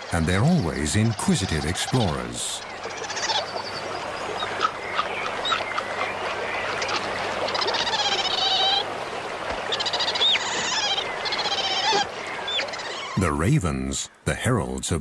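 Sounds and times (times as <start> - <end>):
ravens calling harshly: 0.1 - 6.0, 9.6 - 13.4.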